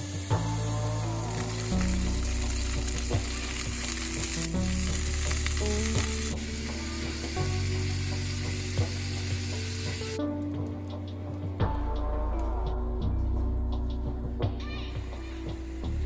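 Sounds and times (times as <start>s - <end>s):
beans sizzling in a frying pan: 0.0s - 10.2s, 15.0s - 16.0s.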